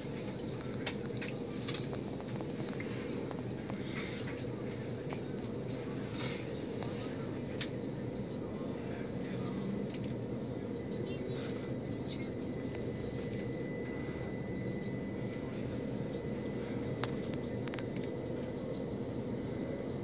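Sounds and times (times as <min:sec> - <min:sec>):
train rumble inside carriage: 0:00.0 - 0:20.0.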